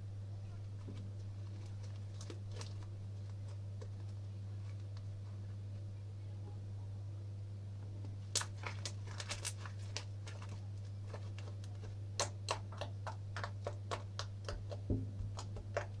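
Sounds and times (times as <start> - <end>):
steady low hum: 0.0 - 16.0
dull thump: 14.9 - 15.3.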